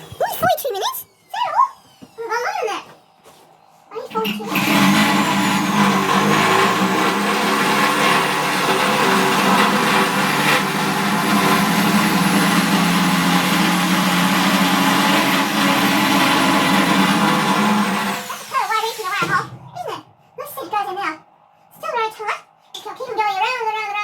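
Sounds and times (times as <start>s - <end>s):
power drill cutting sheet steel: 0.0s - 2.8s, 4.0s - 19.4s.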